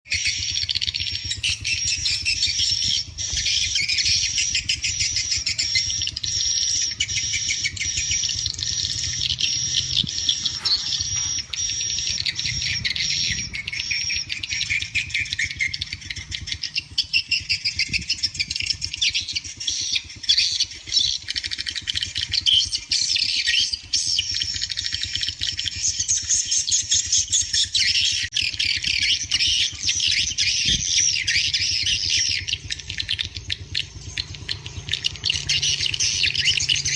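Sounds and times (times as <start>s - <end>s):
swiftlets chirping: 0.1s - 17.8s.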